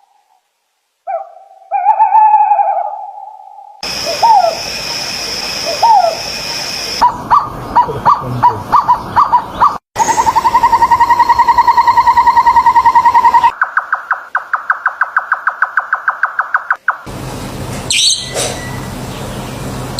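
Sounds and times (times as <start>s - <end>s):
bird fast steady trill: 3.8s - 17.1s, 17.9s - 19.7s
high quick bird pulses: 17.9s - 18.8s.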